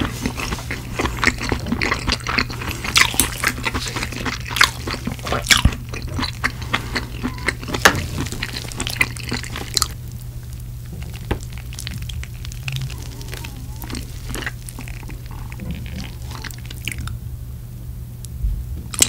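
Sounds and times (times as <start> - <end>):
wet chewing: 0.0 - 17.2
low hum: 4.4 - 19.0.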